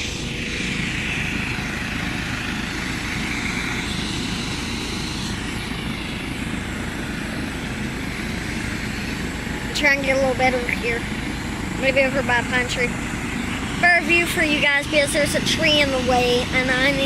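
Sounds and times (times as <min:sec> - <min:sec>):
helicopter rotor and engine: 0:00.0 - 0:17.0.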